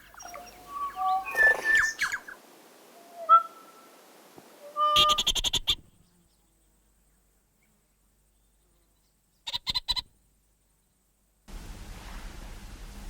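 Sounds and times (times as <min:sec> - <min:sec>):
bird calling with rasping notes: 0:00.0 - 0:02.4, 0:04.6 - 0:06.0.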